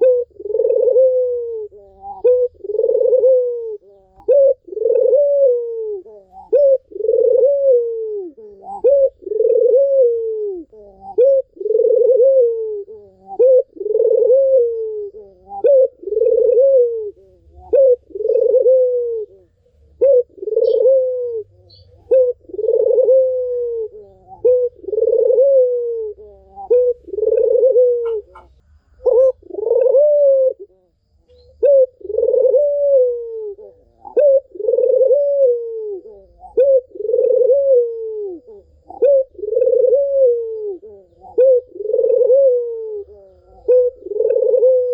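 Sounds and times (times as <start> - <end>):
dove cooing: 0.0 - 44.9.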